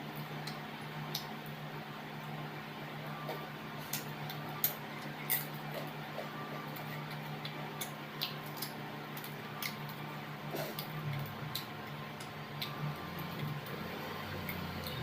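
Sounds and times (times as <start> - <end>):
chewing and mouth sounds: 3.2 - 15.0.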